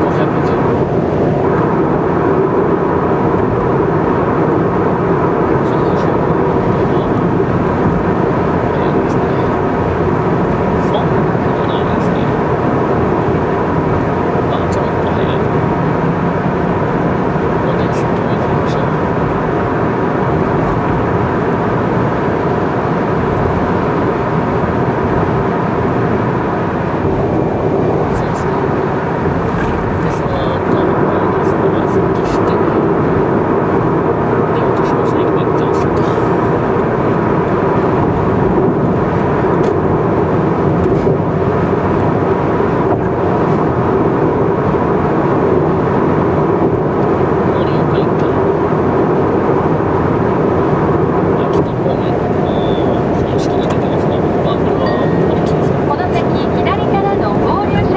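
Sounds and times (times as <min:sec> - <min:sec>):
car engine: 0:00.0 - 0:57.9
car tyre and road noise: 0:00.0 - 0:57.9
faint steady tonal hum: 0:53.4 - 0:57.9.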